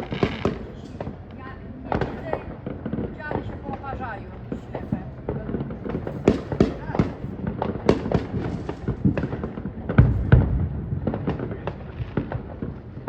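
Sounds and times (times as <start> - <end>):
deep firework booms: 0.0 - 13.0
fireworks bangs and pops: 0.0 - 13.0.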